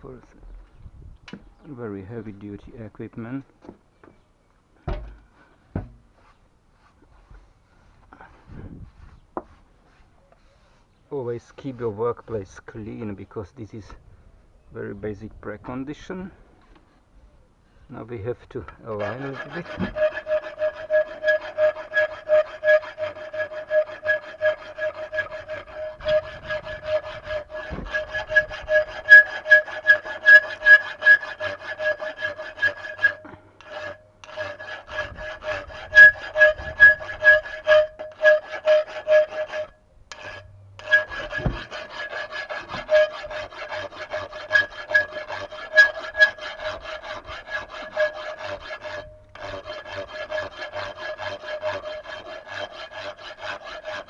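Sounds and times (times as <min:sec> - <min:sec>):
hand tool rasping: 0:18.6 - 0:54.0.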